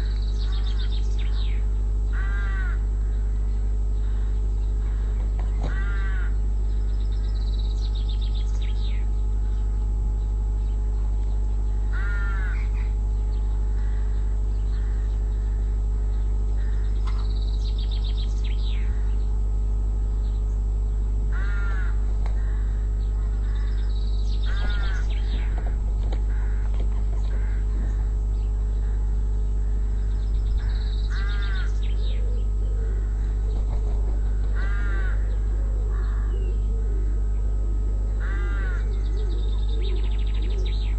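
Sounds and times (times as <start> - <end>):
bird calling high-pitched: 0.0 - 2.8, 21.3 - 37.0, 38.2 - 40.9
crow cawing: 0.0 - 3.4, 4.0 - 7.4, 11.8 - 13.0, 13.7 - 15.8, 16.6 - 17.4, 21.3 - 37.3, 38.1 - 40.9
steady low hum: 0.0 - 40.9.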